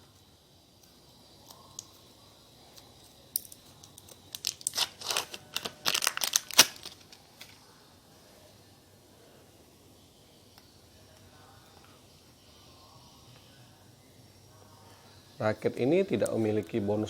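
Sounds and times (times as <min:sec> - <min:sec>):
grip tearing and crinkling: 0:02.8 - 0:07.6.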